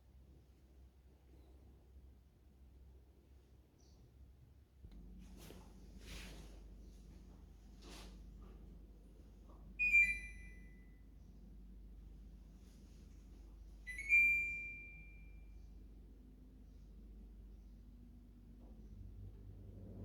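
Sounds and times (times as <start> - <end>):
air conditioner electronic beeps: 9.8 - 11.2, 13.7 - 15.6.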